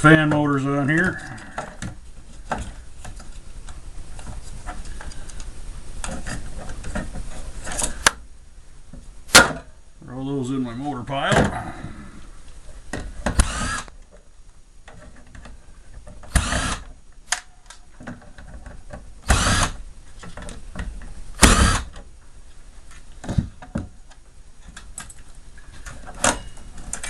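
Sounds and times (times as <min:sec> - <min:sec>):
cordless drill bursts: 0:13.4 - 0:13.9, 0:16.3 - 0:16.9, 0:19.2 - 0:19.8, 0:21.4 - 0:22.0
clicks and knocks of parts: 0:23.2 - 0:27.0.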